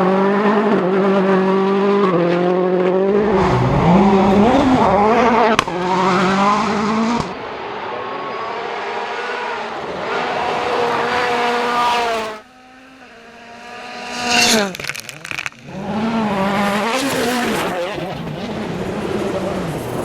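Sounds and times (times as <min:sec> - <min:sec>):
car passing by loudly: 0:00.0 - 0:14.8
rally car engines revving: 0:00.0 - 0:20.0.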